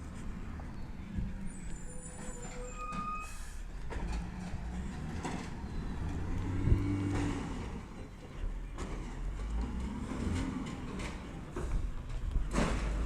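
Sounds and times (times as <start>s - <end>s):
garbage truck engine rumble: 0.0s - 13.0s
high squeal: 1.5s - 3.6s.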